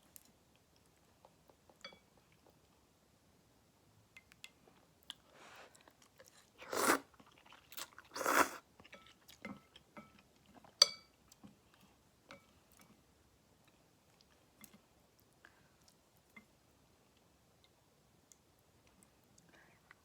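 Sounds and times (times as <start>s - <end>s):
noisy mouthfuls of noodles: 6.6s - 7.5s, 8.1s - 8.6s.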